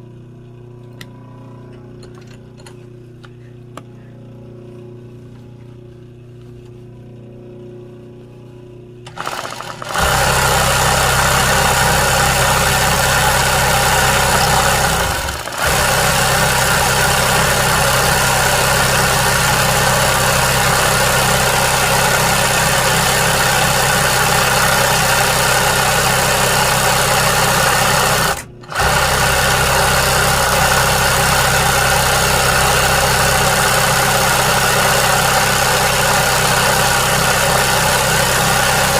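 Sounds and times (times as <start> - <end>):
low hum: 0.0 - 24.6
sewing machine stitching: 9.1 - 38.9.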